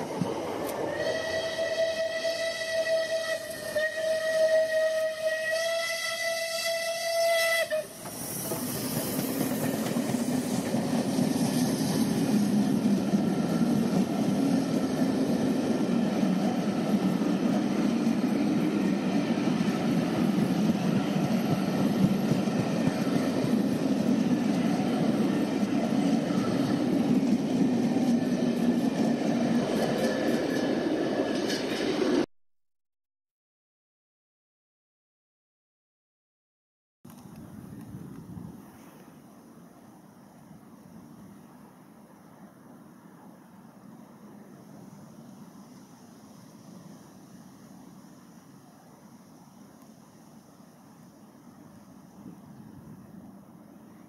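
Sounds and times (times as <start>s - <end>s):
diesel locomotive engine: 0.0s - 32.3s, 37.1s - 54.0s
train wheels on rails: 0.0s - 32.3s.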